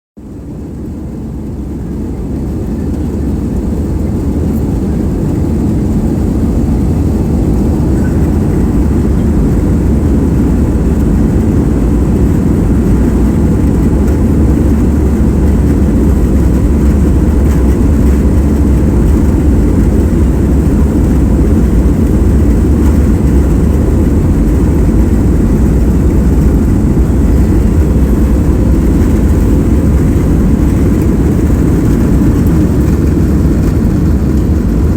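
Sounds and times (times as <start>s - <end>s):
jet engines deep rumble: 0.2s - 34.9s.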